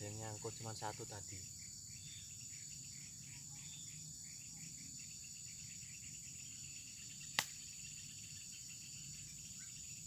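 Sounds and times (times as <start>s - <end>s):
chorus of crickets: 0.0s - 10.0s
sharp click: 7.4s - 7.6s.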